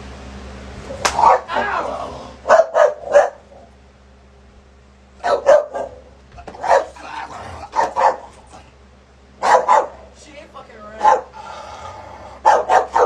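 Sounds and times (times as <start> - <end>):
large dog barking: 1.2 - 1.6, 2.4 - 3.6, 5.2 - 8.5, 9.4 - 10.1, 11.0 - 11.4, 12.4 - 13.0.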